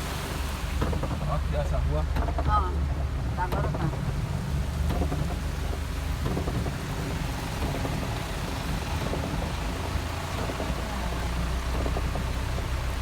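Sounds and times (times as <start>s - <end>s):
vehicle engine humming: 0.0s - 13.0s
heavy rain hissing: 4.4s - 13.0s.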